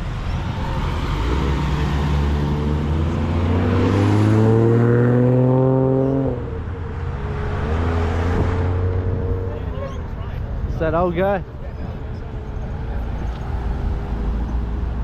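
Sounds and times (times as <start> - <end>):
car engine accelerating: 0.0 - 10.1.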